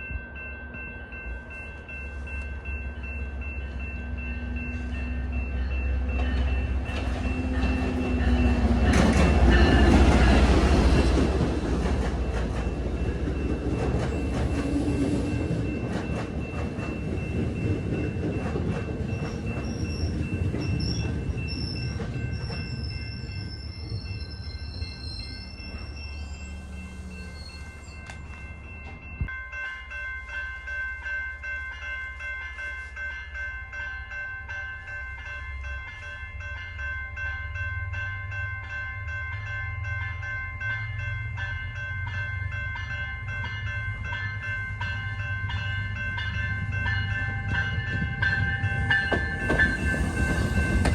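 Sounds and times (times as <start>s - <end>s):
train passing: 0.0s - 50.9s
wheels clicking over rail joints: 6.4s - 22.8s, 47.6s - 50.9s.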